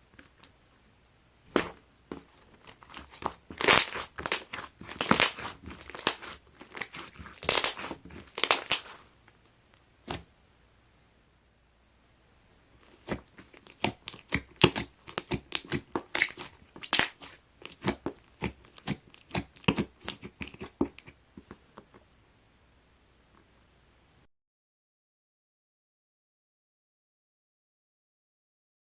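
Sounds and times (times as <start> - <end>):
slime squelching and popping: 1.5 - 10.3, 12.8 - 21.9.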